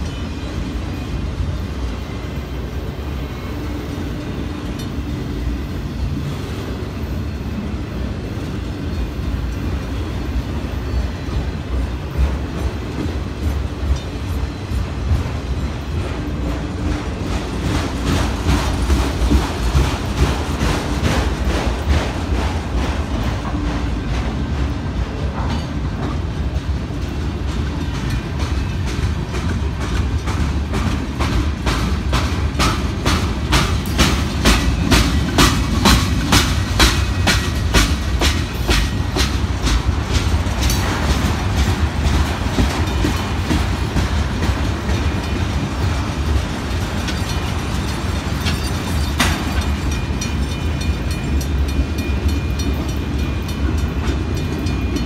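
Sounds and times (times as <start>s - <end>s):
freight train rumbling past: 0.0s - 55.0s
wheels clicking over rail joints: 11.3s - 55.0s.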